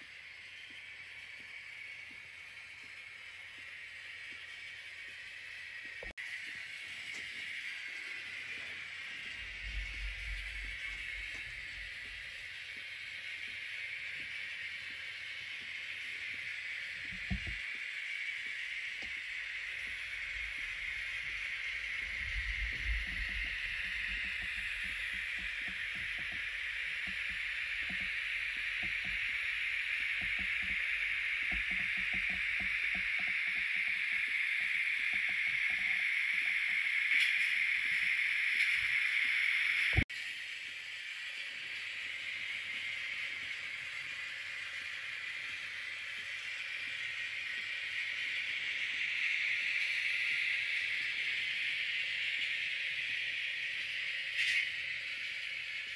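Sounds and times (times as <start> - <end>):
train running on rails: 0.0 - 40.0.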